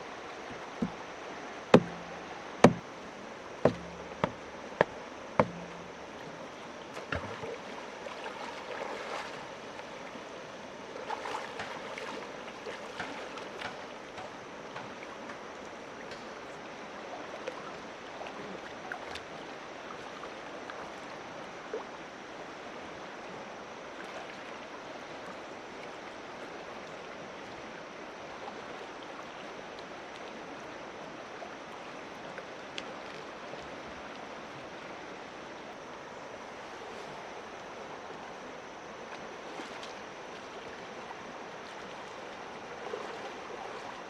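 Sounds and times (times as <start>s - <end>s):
flowing water rushing: 0.0s - 44.0s
sharp knocks or splashes: 0.5s - 1.1s, 1.7s - 2.9s, 3.6s - 6.3s, 6.9s - 9.4s, 11.1s - 12.2s, 12.8s - 15.0s.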